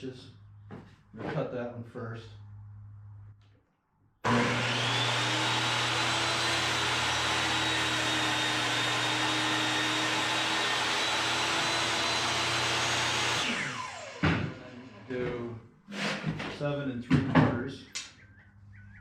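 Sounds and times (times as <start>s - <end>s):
power saw cutting wood: 4.2s - 15.2s.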